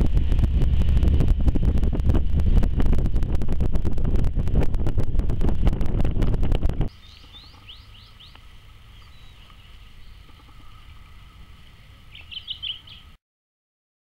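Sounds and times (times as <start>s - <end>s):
faint low rumble: 0.0s - 13.1s
birds chirping: 6.9s - 13.2s.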